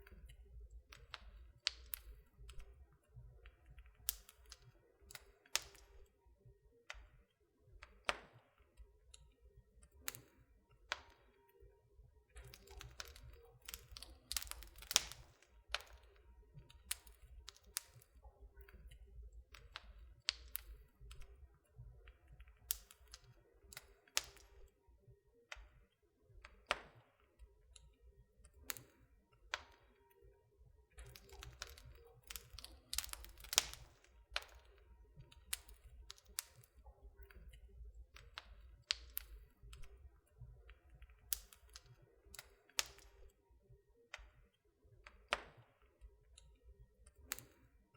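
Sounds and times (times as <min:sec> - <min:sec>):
wood fire crackling: 0:00.0 - 0:06.1, 0:09.9 - 0:11.2, 0:12.3 - 0:24.7, 0:28.5 - 0:29.8, 0:30.9 - 0:43.3, 0:47.0 - 0:47.6.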